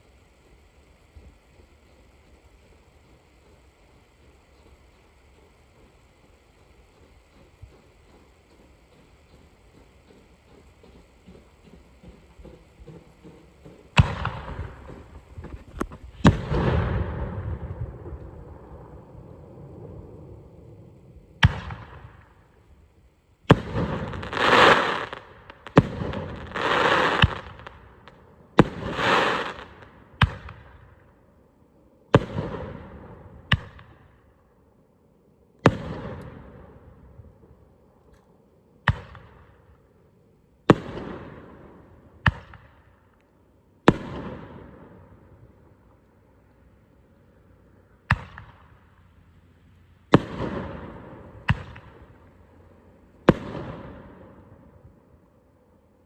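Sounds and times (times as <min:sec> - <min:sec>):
firework booms: 0:11.3 - 0:22.5, 0:23.5 - 0:30.9, 0:32.2 - 0:34.0, 0:35.7 - 0:37.1, 0:43.9 - 0:45.1, 0:50.1 - 0:52.2, 0:53.2 - 0:54.8
firework hisses: 0:23.5 - 0:30.0.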